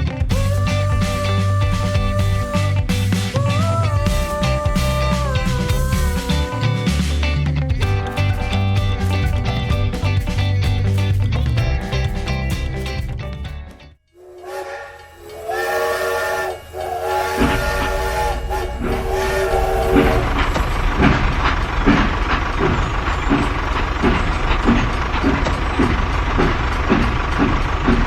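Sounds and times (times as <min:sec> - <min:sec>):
low rhythmic running rumble: 0:00.0 - 0:13.7, 0:16.0 - 0:28.0
multi-note horn blasts: 0:14.2 - 0:21.2.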